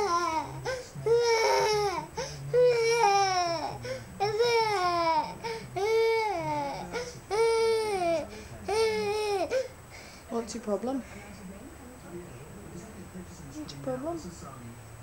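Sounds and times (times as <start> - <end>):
toddler whining and crying: 0.0 - 9.7.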